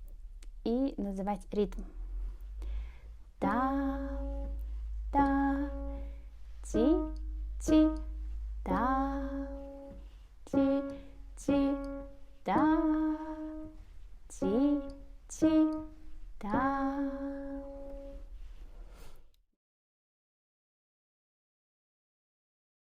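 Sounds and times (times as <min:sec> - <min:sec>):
person singing: 0:03.4 - 0:04.6, 0:05.2 - 0:18.1
piano notes: 0:03.4 - 0:18.6.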